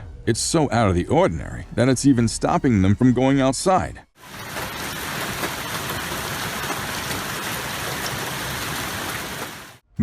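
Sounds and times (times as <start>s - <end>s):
hail and heavy rain falling: 4.2s - 9.8s.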